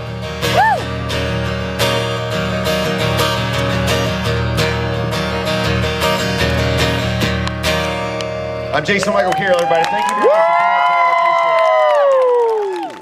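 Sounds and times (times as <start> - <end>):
acoustic guitar strumming chords: 0.0 - 9.2.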